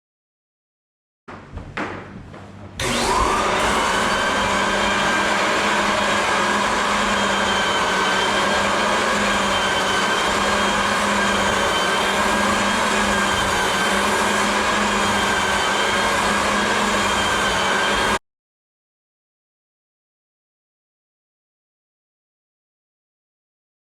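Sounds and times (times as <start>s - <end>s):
floor sander whirring: 2.8s - 18.2s.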